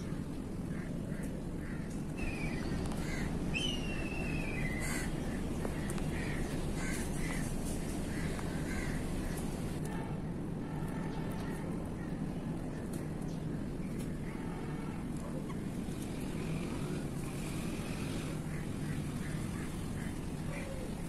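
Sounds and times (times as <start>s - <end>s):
low background rumble: 0.0s - 15.9s
short bird calls: 2.2s - 5.4s.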